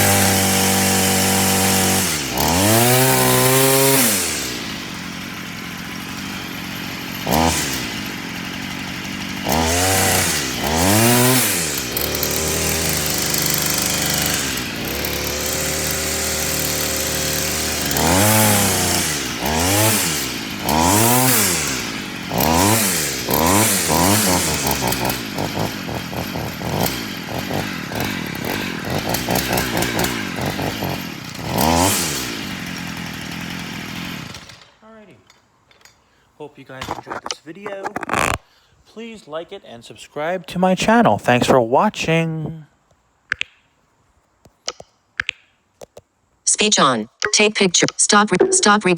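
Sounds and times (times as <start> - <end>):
string trimmer engine revving: 0.0 - 34.7, 37.1 - 38.4.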